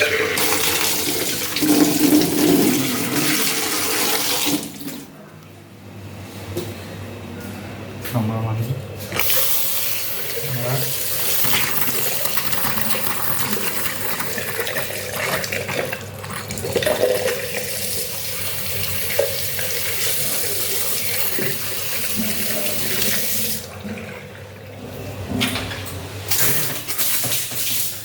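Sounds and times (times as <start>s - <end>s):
water running from a tap: 0.0s - 5.0s, 9.2s - 23.8s.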